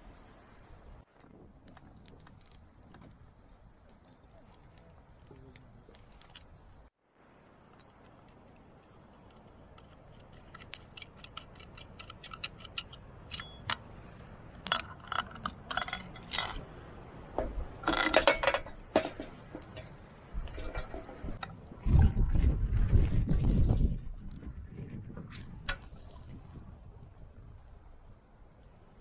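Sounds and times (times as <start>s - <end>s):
small objects clicking and knocking: 7.7s - 13.8s.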